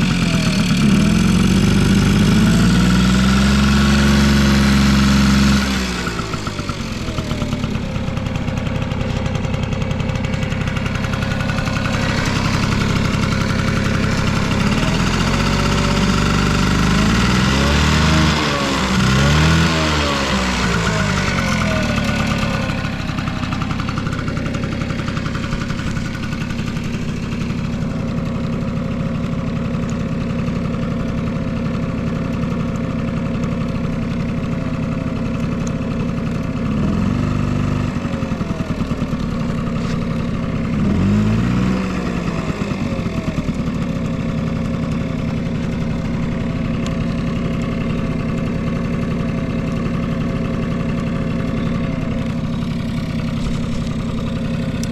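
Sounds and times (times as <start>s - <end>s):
scooter engine idling: 0.0s - 54.9s.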